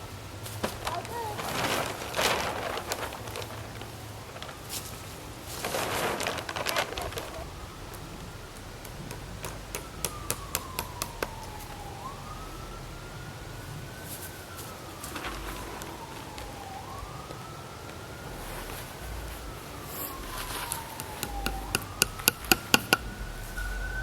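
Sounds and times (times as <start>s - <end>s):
siren wailing: 6.1s - 24.0s
sharp knocks: 21.0s - 23.2s.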